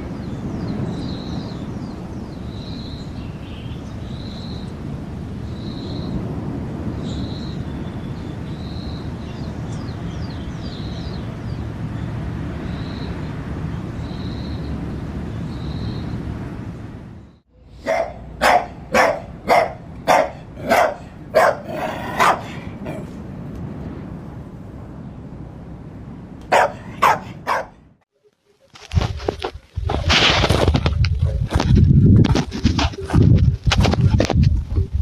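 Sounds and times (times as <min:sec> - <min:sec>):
dog barking: 0:17.8 - 0:23.1, 0:26.5 - 0:27.8.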